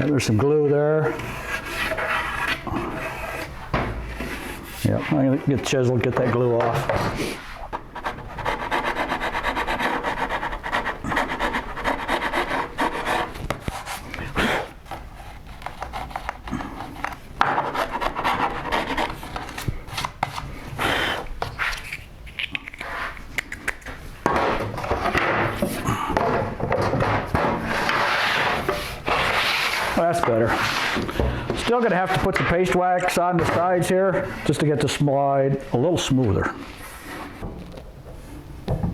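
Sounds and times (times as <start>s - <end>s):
chisel scraping wood: 1.0s - 5.1s, 14.8s - 20.4s.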